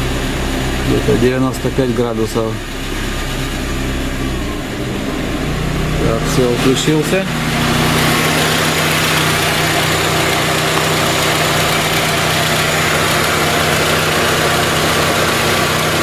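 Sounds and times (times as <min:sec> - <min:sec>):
car engine idling: 0:00.0 - 0:16.0
radiator cooling fan: 0:04.7 - 0:16.0.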